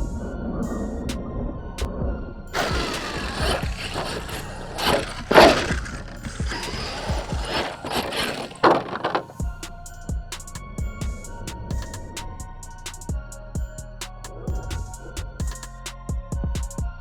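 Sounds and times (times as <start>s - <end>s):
electric toy truck motor whirring: 2.6s - 9.4s
tyres churning dirt: 2.6s - 9.5s
music with a steady beat: 9.5s - 17.0s.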